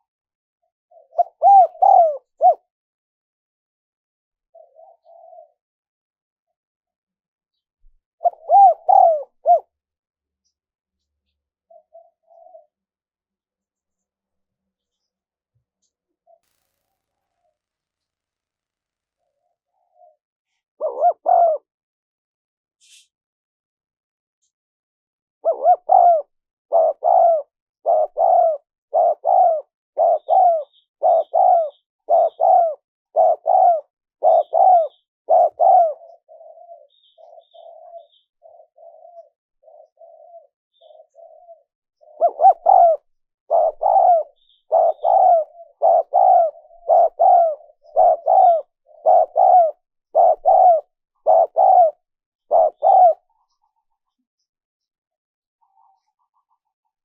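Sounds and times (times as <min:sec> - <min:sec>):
dove cooing: 0:00.9 - 0:02.7, 0:04.5 - 0:05.6, 0:08.2 - 0:09.8, 0:11.7 - 0:12.8, 0:19.2 - 0:21.7, 0:25.4 - 0:54.2, 0:55.6 - 0:56.7.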